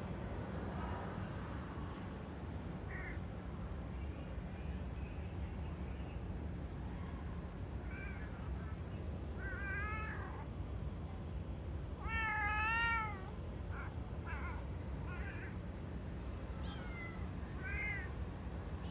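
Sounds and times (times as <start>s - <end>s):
cat meowing: 9.4s - 10.4s, 12.0s - 15.6s, 16.6s - 18.1s.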